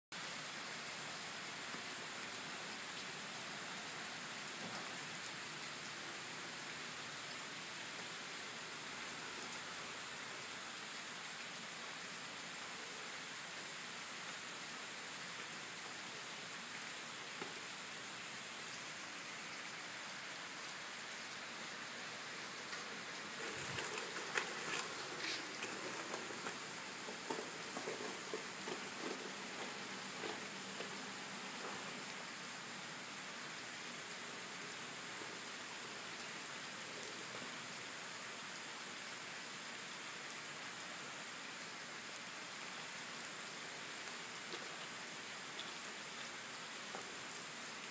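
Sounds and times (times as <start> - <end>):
heavy rain on pavement: 0.1 - 47.9
crackles and taps: 23.4 - 31.0.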